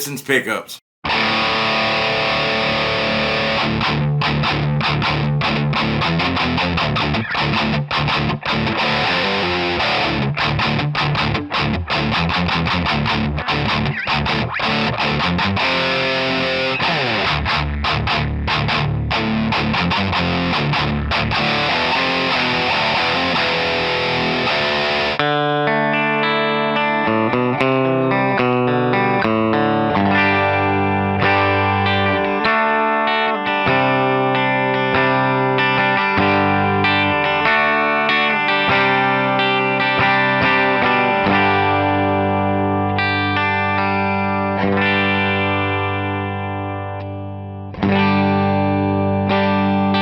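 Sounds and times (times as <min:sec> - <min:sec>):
distorted electric guitar riffs: 0:01.1 - 0:50.0
clean electric guitar notes: 0:25.2 - 0:50.0.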